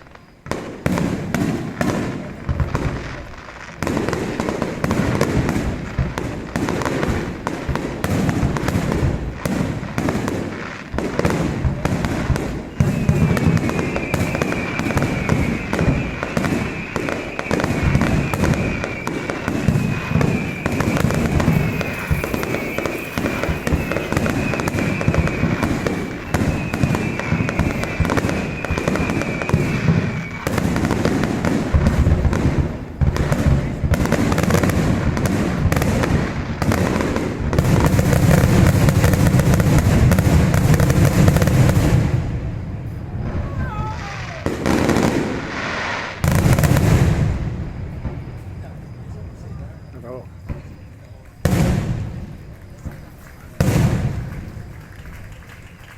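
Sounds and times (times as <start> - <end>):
fireworks bangs and crackling: 0.0 - 55.9
high firework whistles: 0.0 - 55.9.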